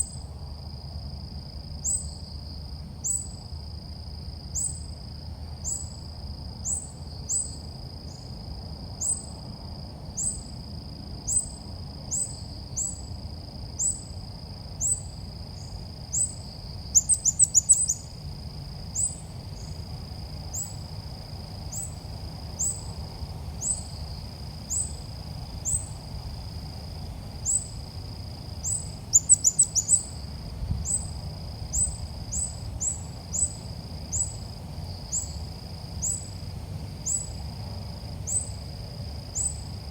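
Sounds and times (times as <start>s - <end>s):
bird chirping calls: 28.7s - 30.1s.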